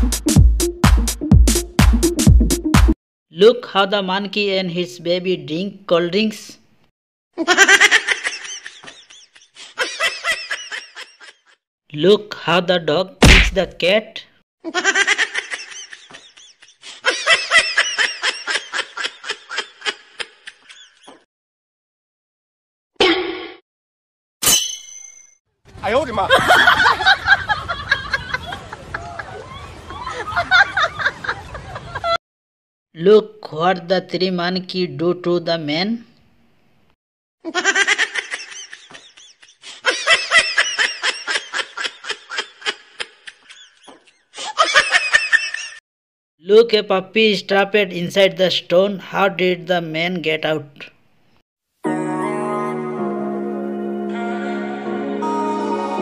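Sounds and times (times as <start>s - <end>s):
person laughing: 7.4s - 11.6s, 14.7s - 21.2s, 26.3s - 29.4s, 30.0s - 32.2s, 37.5s - 45.8s.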